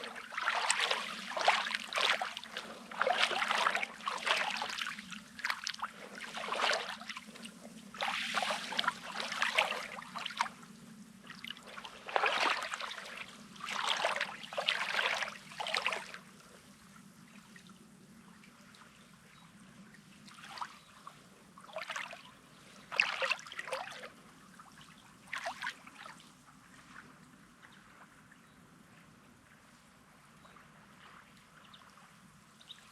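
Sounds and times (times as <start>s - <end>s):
waves lapping on pebbles: 0.0s - 10.6s, 11.3s - 16.2s.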